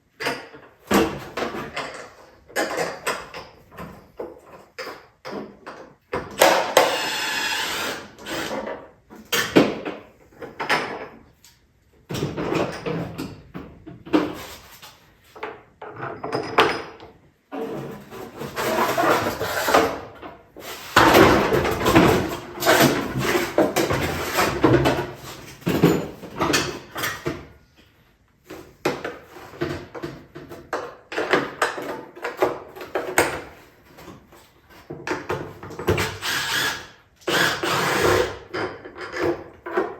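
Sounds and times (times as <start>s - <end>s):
plastic and metal parts scraping: 17.5s - 27.3s.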